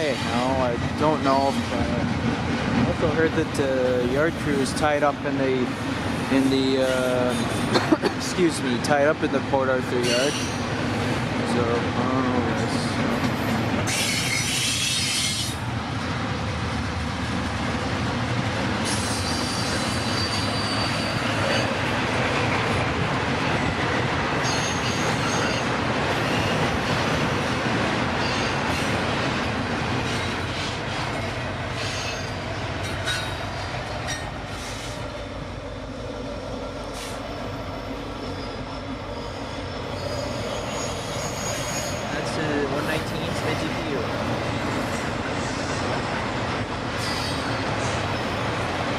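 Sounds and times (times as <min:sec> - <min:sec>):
train wheels clattering on rails: 0:00.0 - 0:35.4
high-pitched wheel squeals: 0:10.0 - 0:10.6, 0:18.9 - 0:21.8, 0:37.8 - 0:42.1, 0:47.0 - 0:47.6.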